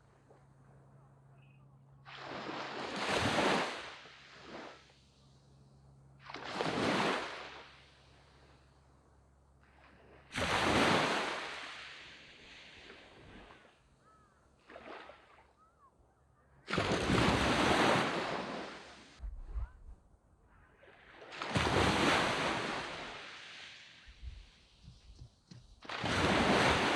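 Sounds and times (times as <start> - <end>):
waves crashing on beach: 2.0 - 5.1, 6.2 - 8.5, 10.3 - 13.8, 16.7 - 19.2, 20.8 - 26.9.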